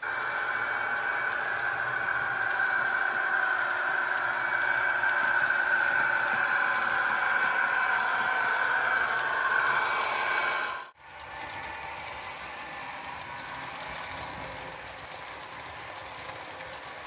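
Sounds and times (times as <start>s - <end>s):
steady tones: 0.0s - 11.0s
model train rattling whirr: 0.0s - 17.0s.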